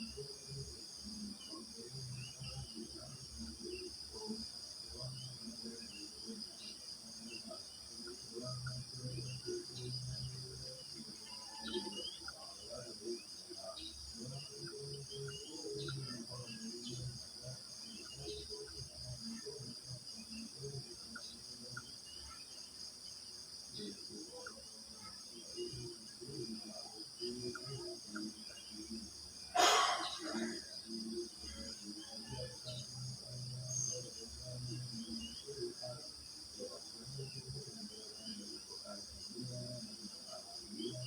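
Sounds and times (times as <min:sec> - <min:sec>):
crickets chirping: 0:00.0 - 0:41.0
bird chirps: 0:29.6 - 0:30.6.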